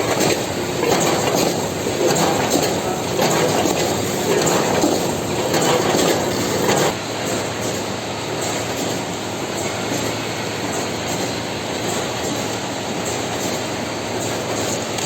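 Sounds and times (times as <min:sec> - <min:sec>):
packaging machine clattering: 0:00.0 - 0:06.9.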